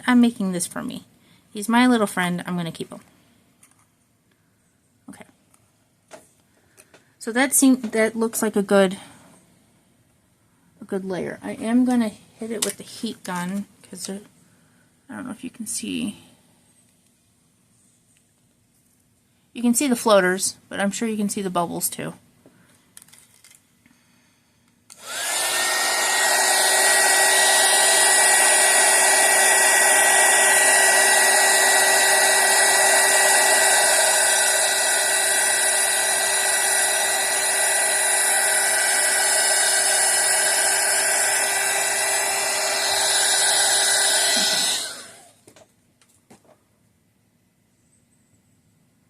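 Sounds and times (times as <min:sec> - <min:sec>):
heat gun blowing: 0:24.9 - 0:45.4.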